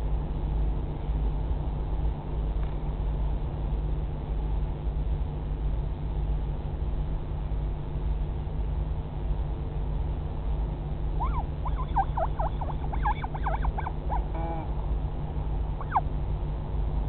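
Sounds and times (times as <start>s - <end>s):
steady low rumble: 0.0s - 17.0s
albatross chick calling: 11.2s - 14.7s, 15.8s - 16.0s.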